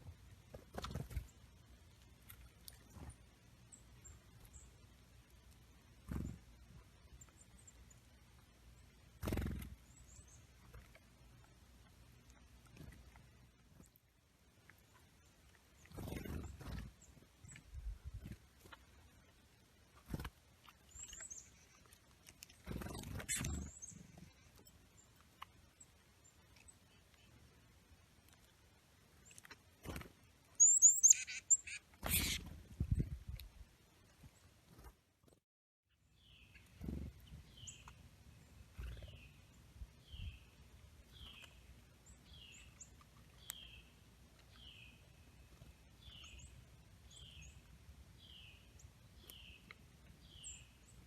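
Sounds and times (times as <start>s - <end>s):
songbirds chirping: 0.0s - 51.0s
high thin bird chirps: 22.6s - 24.2s, 30.6s - 32.5s.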